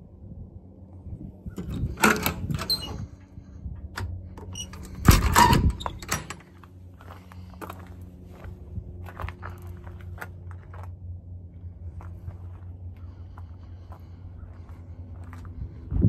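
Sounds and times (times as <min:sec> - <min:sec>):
steady low hum: 0:00.0 - 0:16.0
metal door clattering: 0:01.6 - 0:03.2, 0:04.0 - 0:06.6.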